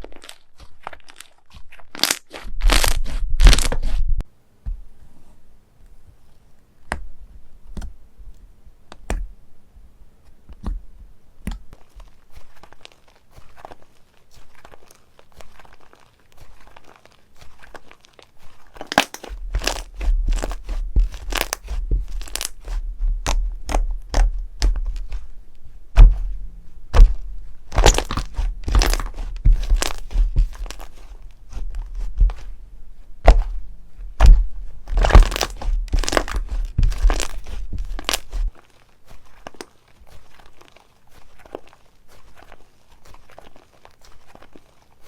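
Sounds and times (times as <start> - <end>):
slime crackling and popping: 0.0 - 4.0, 11.4 - 25.3, 25.9 - 32.6, 33.2 - 45.0
low rumble of pressing: 19.4 - 38.5.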